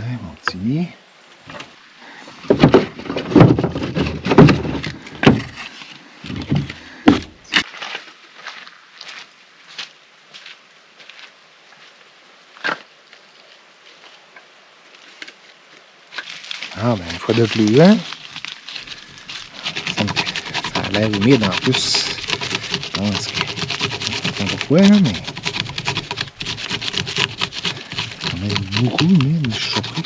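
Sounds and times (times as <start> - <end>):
faint hiss of wet forest: 0.0 - 2.4, 7.7 - 19.8
rustling and knocking: 2.5 - 5.6, 16.2 - 30.0
sticks cracking and snapping: 16.2 - 19.3.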